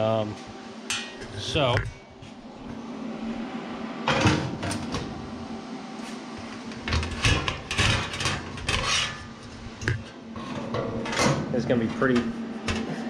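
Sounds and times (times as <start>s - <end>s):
sheet steel scraping and rattling: 6.6s - 13.0s.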